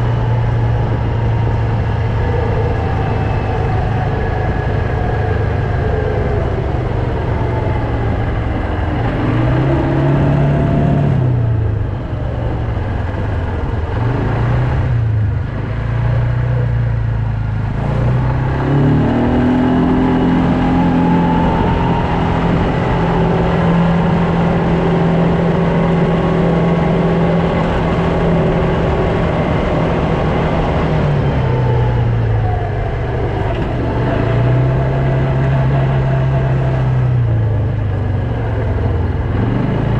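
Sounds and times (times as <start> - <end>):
quad bike engine revving: 17.6 - 39.9.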